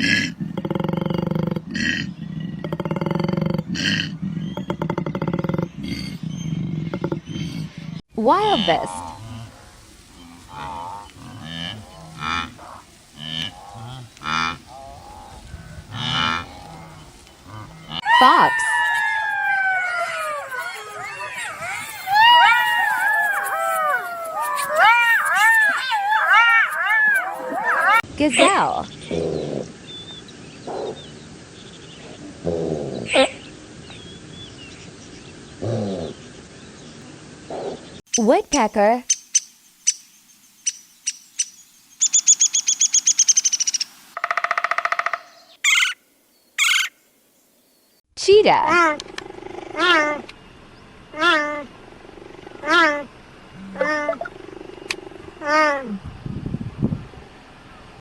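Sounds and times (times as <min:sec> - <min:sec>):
small birds chirping faintly: 0:00.0 - 0:56.1
wildebeest calling: 0:08.4 - 0:24.7, 0:51.1 - 0:51.7, 0:52.4 - 0:55.6.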